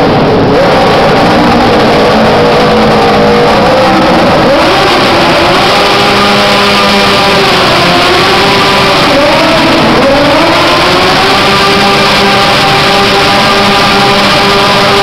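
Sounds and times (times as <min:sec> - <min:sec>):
tractor engine running hard: 0:00.0 - 0:15.0.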